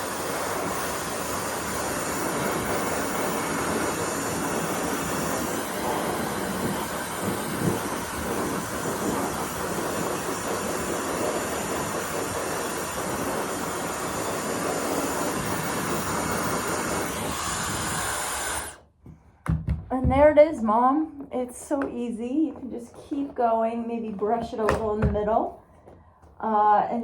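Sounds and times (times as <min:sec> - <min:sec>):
hair dryer blowing: 0:00.0 - 0:18.9.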